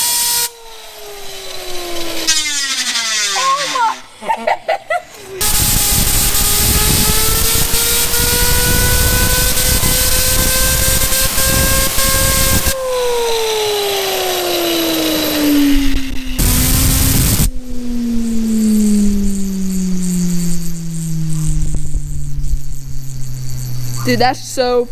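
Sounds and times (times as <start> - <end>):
fidget spinner whine: 0.0 - 24.9
compressed air hissing: 5.3 - 17.5.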